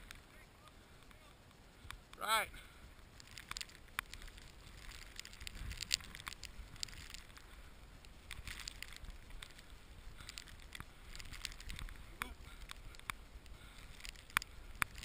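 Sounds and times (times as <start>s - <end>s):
wind rumble on microphone: 3.1s - 15.0s.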